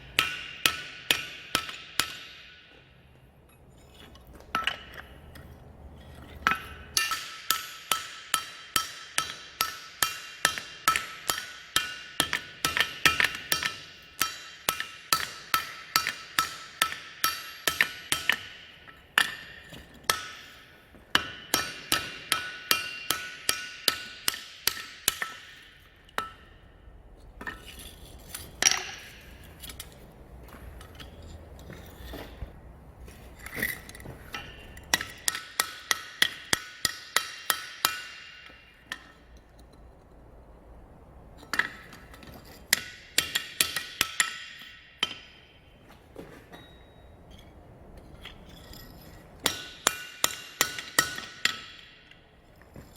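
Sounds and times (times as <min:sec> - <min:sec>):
hammer striking steel on anvil: 0:00.0 - 0:03.0, 0:04.5 - 0:05.2, 0:06.4 - 0:30.0, 0:33.5 - 0:39.7, 0:41.4 - 0:45.8, 0:48.2 - 0:52.9.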